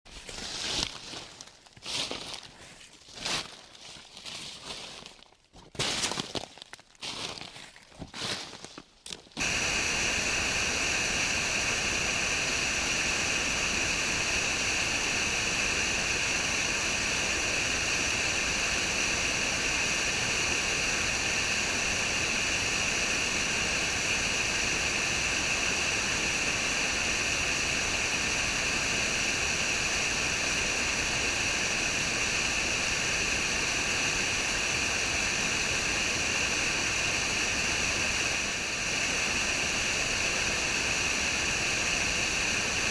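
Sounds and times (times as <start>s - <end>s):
waterfall roaring: 9.4s - 42.9s.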